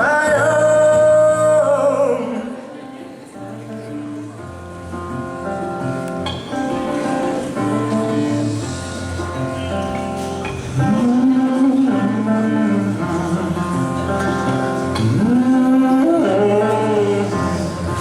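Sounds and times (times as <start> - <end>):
person singing wordless melody: 0.0 - 4.4, 10.7 - 18.0
acoustic guitar chords: 0.0 - 18.0.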